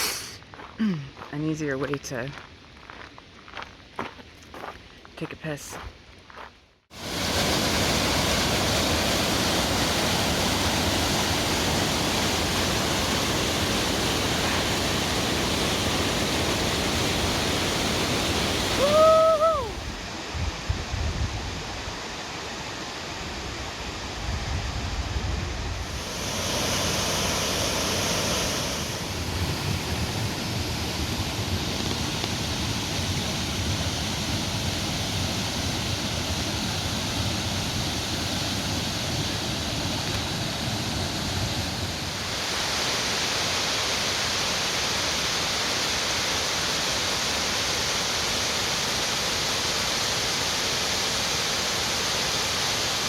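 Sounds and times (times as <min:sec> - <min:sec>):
waterfall rushing: 0:07.0 - 0:20.3, 0:25.8 - 0:53.0.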